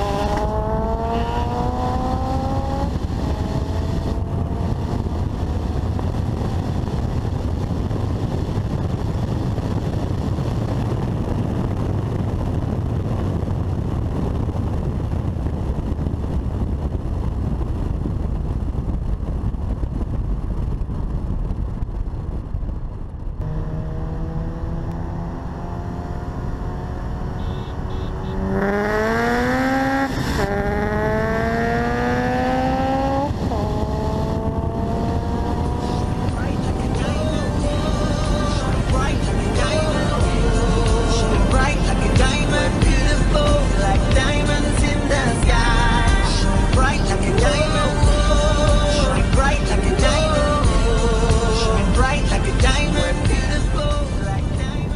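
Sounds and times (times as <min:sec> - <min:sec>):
car engine revving: 0:00.0 - 0:10.2, 0:23.3 - 0:54.3
wind rushing: 0:00.0 - 0:54.9.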